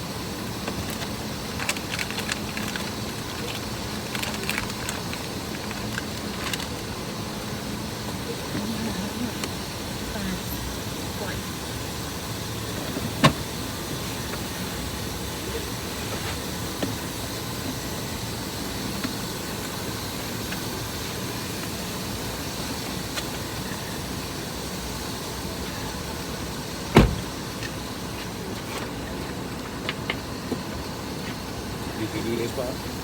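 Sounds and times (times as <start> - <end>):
car air conditioning blowing: 0.0 - 33.0
sharp thump: 27.0 - 27.3.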